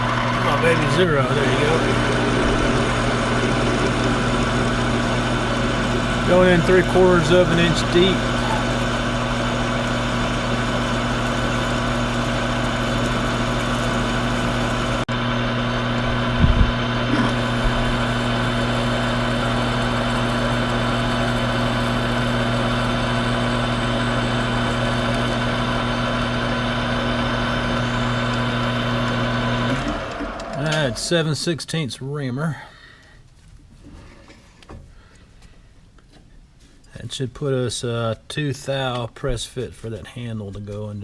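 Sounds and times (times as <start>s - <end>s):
lathe motor humming: 0.0s - 31.3s.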